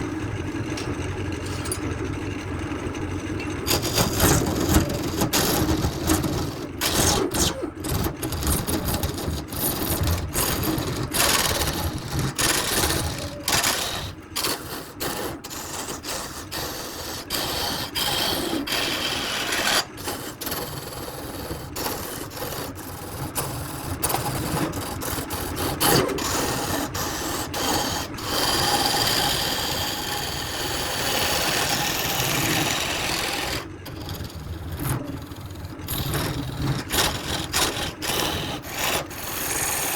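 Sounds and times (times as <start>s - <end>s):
power tools cutting wood: 3.6s - 39.9s.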